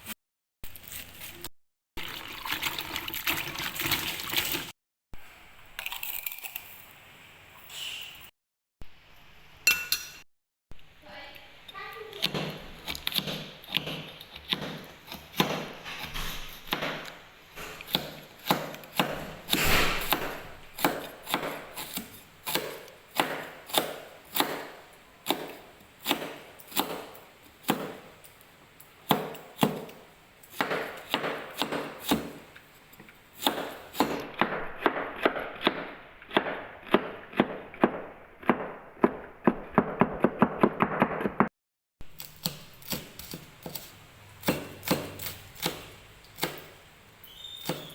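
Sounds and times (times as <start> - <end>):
knife chopping on a board: 12.2 - 28.1, 29.1 - 32.5, 33.4 - 41.5, 42.2 - 46.8, 47.6 - 47.9.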